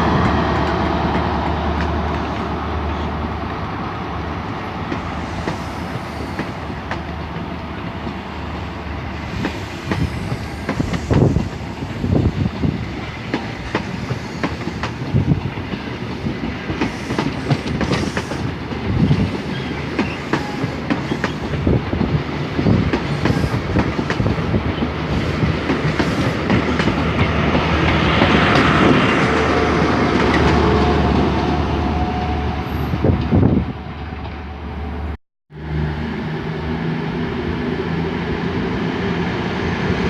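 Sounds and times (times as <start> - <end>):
train wheels clacking on rails: 0.0 - 3.1, 4.8 - 32.4.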